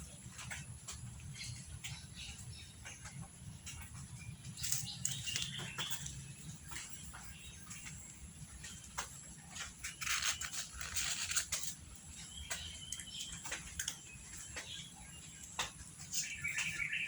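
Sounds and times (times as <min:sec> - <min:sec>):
bird chirp: 0:00.0 - 0:17.0
rustling: 0:08.9 - 0:11.9.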